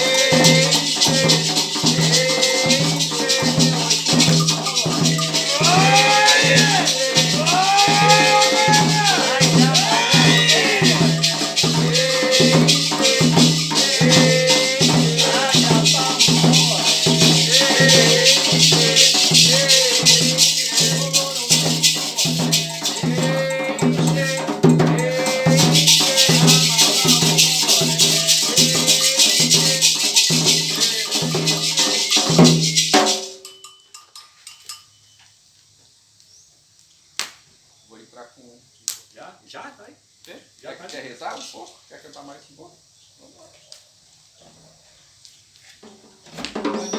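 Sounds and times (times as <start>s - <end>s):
voices singing: 0.0s - 33.1s
low percussion strokes: 0.0s - 33.2s
shaken rattle rhythm: 0.0s - 35.0s.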